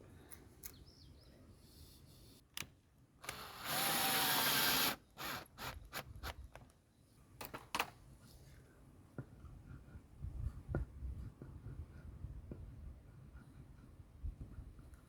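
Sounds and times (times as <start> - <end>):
cordless drill running: 3.2 - 5.8.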